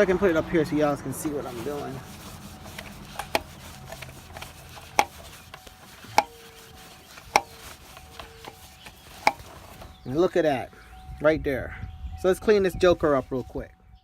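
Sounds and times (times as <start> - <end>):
sharp knocks: 7.3 - 7.5.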